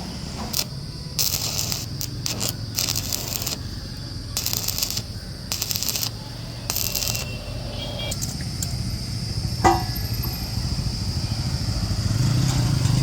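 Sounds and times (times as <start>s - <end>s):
arc welding crackling: 0.0s - 9.5s
steady low hum: 0.0s - 12.0s.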